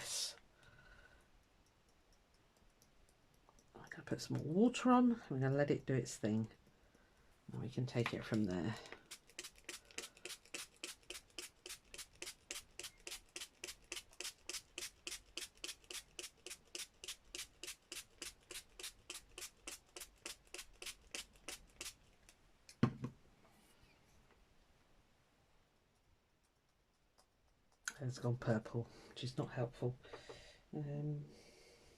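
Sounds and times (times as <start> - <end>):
spray bottle spritzing: 9.0 - 22.0.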